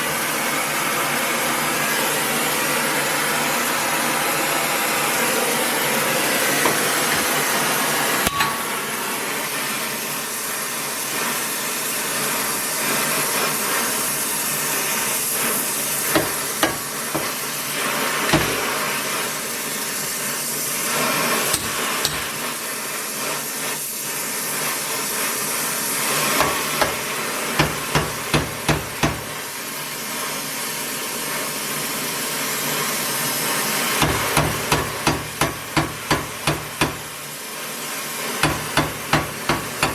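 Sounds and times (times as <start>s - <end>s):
hammer blows: 8.2s - 8.8s.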